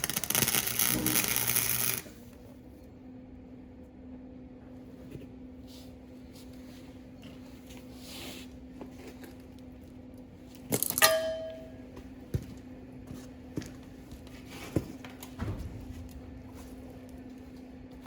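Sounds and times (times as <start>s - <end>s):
steady low hum: 0.0s - 18.0s
metal clang ringing: 10.9s - 11.9s.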